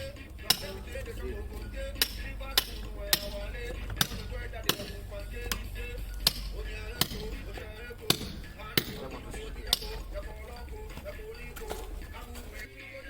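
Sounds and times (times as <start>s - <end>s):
background music: 0.0s - 13.0s
sharp hammer-like knocks: 2.0s - 3.4s, 4.0s - 7.4s, 8.1s - 10.0s.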